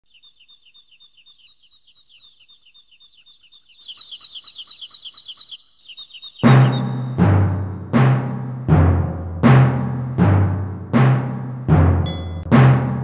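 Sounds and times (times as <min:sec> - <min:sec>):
high falling bird chirps: 0:00.0 - 0:08.0
louder bird chirping: 0:00.1 - 0:07.8.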